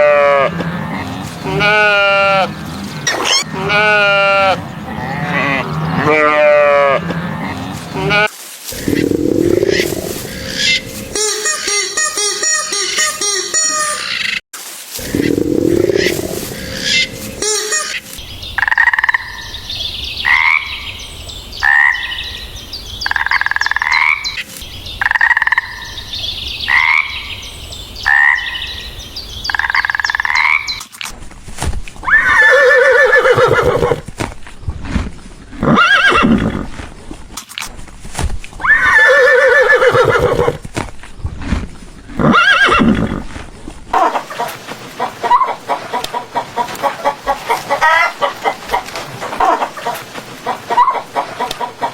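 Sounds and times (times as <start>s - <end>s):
horse whinnying: 32.0s - 34.0s, 35.6s - 36.7s, 38.6s - 40.6s, 42.2s - 43.3s.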